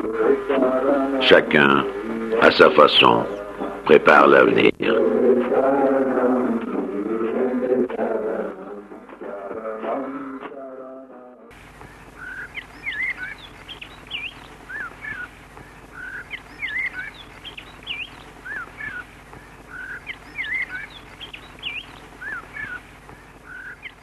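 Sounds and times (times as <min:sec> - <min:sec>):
faint steady hum: 0:00.0 - 0:10.4, 0:11.5 - 0:24.0
bird song chirps: 0:11.7 - 0:24.0.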